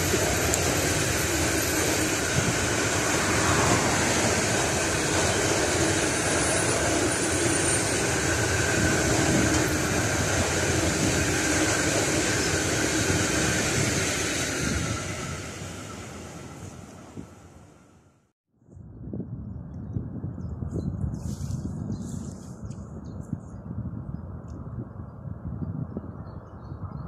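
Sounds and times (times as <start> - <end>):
steel wheels rolling on rail: 0.0 - 18.0.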